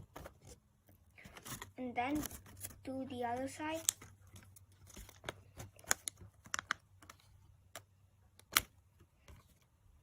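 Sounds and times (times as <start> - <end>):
paper crackling being handled: 1.2 - 7.4.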